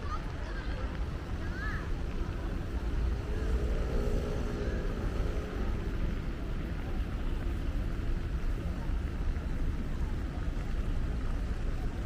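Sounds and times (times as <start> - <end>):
city traffic rumble: 0.0 - 12.0
passing vehicle engine: 2.5 - 7.2.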